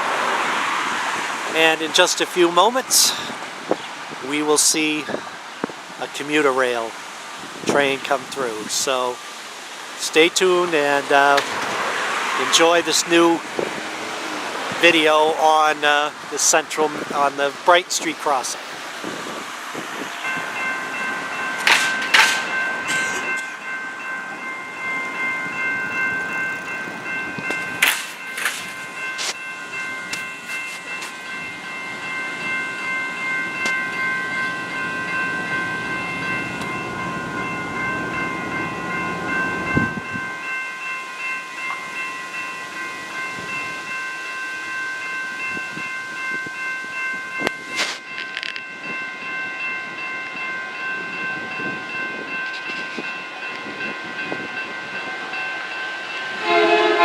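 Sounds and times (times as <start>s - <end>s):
crossing warning bell ringing: 0.0s - 57.0s
train rumble: 0.0s - 57.0s
sharp metallic clanks: 21.6s - 23.8s.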